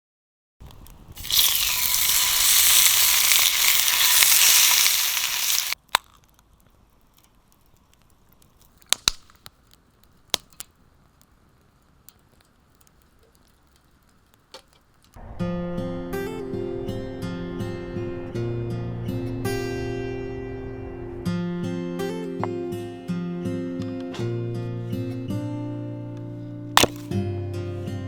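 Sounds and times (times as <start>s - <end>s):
sharp clicks and pops: 0.6s - 15.2s, 26.8s - 27.1s
pork sizzling in a frying pan: 1.2s - 5.8s.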